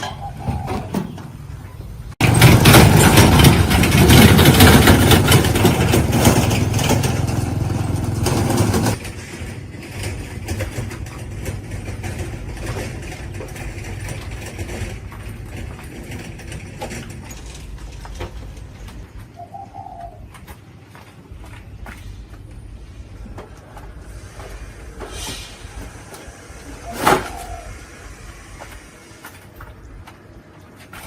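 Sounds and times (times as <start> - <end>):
engine running roughly: 2.2 - 15.8.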